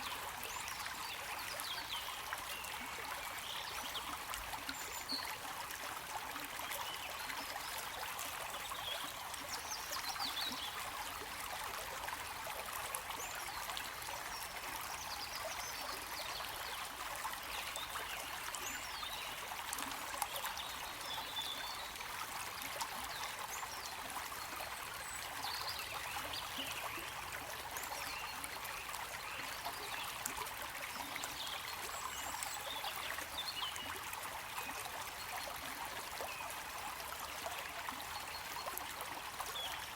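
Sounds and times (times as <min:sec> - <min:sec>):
stream trickling and splashing: 0:00.0 - 0:39.9.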